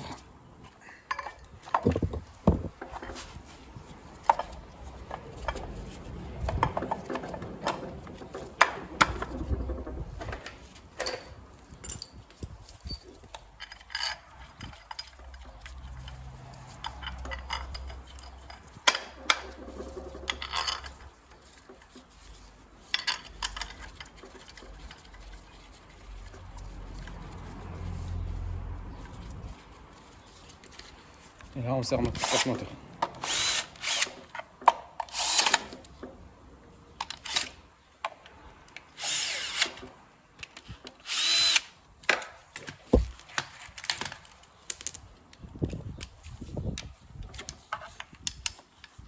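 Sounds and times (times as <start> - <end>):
metal tools clinking and knocking: 1.0 - 2.1, 6.6 - 21.1, 22.8 - 25.2.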